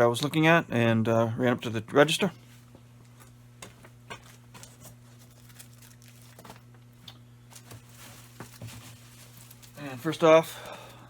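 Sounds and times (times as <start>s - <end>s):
low electrical hum: 0.0s - 11.0s
faint clicks and rustles: 2.5s - 9.9s.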